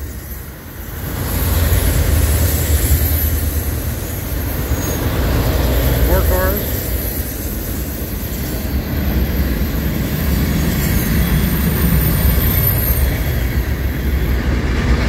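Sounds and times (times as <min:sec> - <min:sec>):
high wheel squeal: 0:00.0 - 0:14.7
train wheels rumbling on track: 0:00.0 - 0:15.0.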